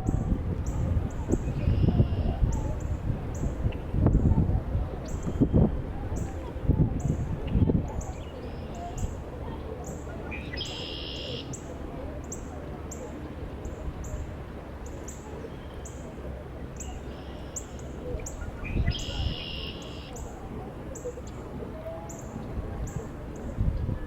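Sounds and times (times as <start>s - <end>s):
low wind rumble: 0.0s - 24.0s.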